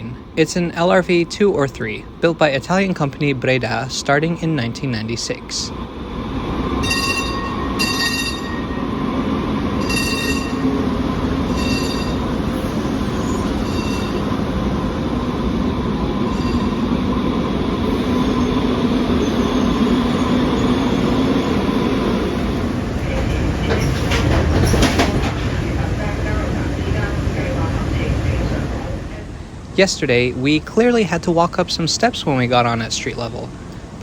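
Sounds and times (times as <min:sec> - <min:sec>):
light rail car rumble: 0:00.0 - 0:34.0
wheel squeal: 0:06.8 - 0:08.7, 0:09.8 - 0:10.8, 0:11.5 - 0:14.3.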